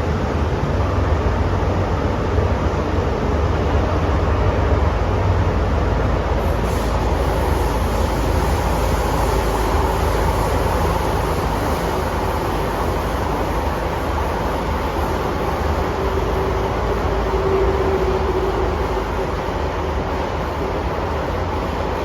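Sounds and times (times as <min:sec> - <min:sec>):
train wheels rumbling: 0:00.0 - 0:22.0
high hiss: 0:06.4 - 0:21.0.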